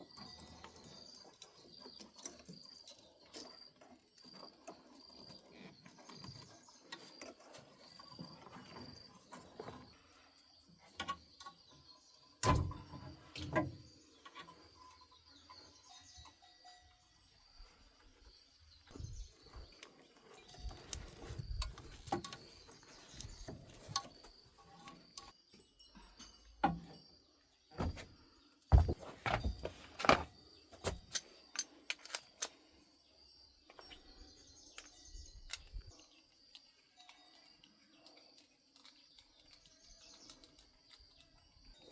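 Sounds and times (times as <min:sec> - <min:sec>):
faint high chirping: 0:13.4 - 0:31.8
hand tools clicking and knocking: 0:28.7 - 0:32.6.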